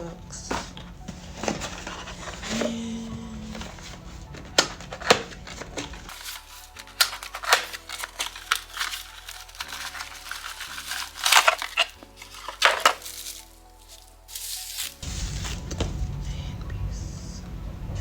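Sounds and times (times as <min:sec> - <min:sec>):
soft background music: 0:00.0 - 0:18.0
packaging crinkling and rustling: 0:03.5 - 0:15.8
small items clicking: 0:05.5 - 0:15.0.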